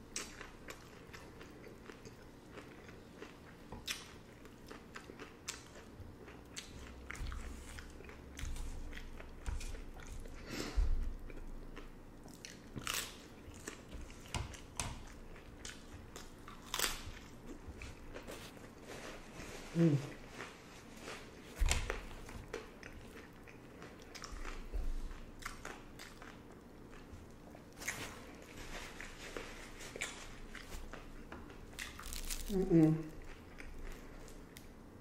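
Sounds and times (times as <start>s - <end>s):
wet chewing: 0.1s - 18.8s, 20.4s - 34.7s
crunching taco shells: 11.1s - 18.8s, 20.8s - 34.8s.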